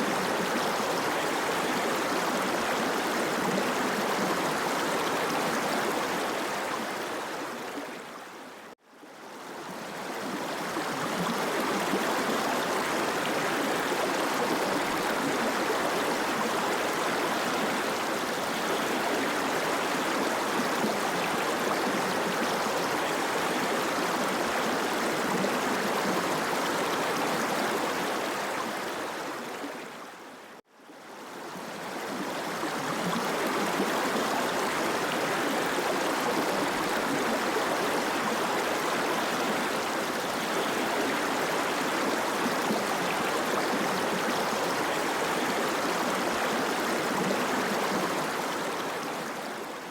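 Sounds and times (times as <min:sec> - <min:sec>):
stream water rushing: 0:09.4 - 0:30.3, 0:31.3 - 0:49.9.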